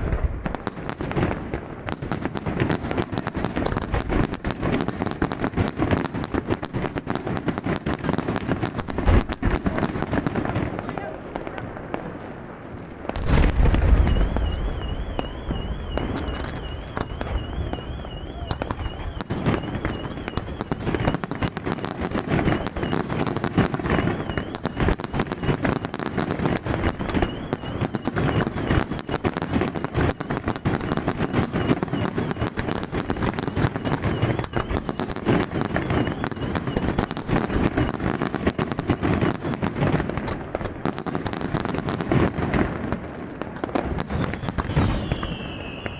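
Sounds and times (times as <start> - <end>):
fireworks booming and crackling: 0.0 - 45.9
high warbling whistle: 13.3 - 21.5, 23.8 - 25.6, 27.0 - 32.6, 44.0 - 45.9.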